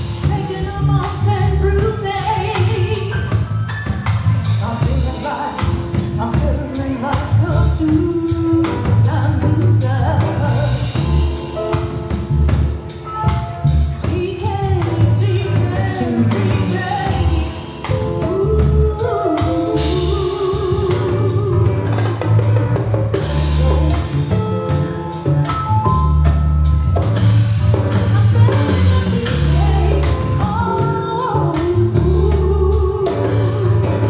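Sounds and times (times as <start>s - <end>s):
bass: 0.0s - 34.0s
drums: 0.0s - 34.0s
lead vocals: 4.6s - 11.2s, 14.1s - 22.3s, 28.1s - 34.0s.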